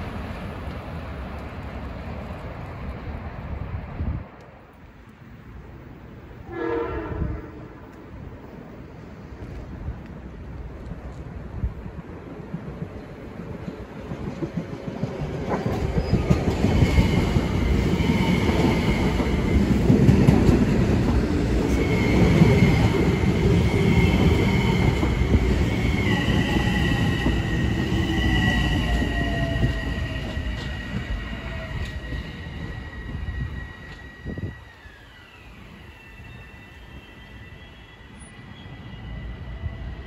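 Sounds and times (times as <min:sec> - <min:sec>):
high steady train whine: 0:00.0 - 0:40.0
wheels rumbling on rail: 0:00.0 - 0:40.0.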